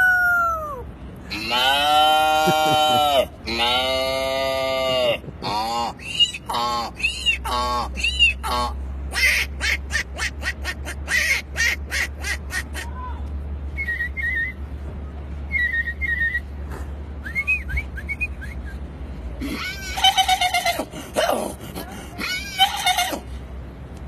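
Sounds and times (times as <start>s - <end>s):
person making quacking sounds: 1.3s - 12.9s
person whistling bird chirps: 17.2s - 18.8s.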